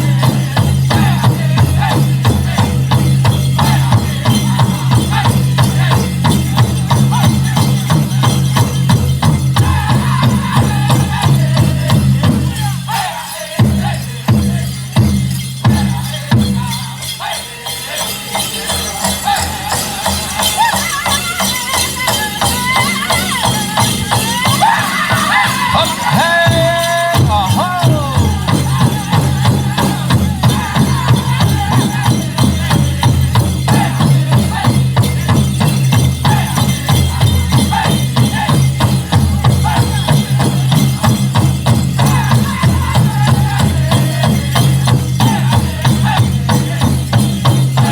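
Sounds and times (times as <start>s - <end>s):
big drum beaten: 0.0s - 13.0s, 23.4s - 47.9s
group singing: 0.0s - 47.9s.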